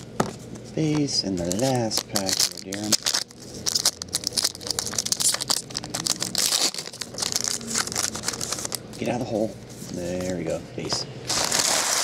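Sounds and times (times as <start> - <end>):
wrapper tearing and crinkling: 1.4 - 8.8, 11.3 - 12.0.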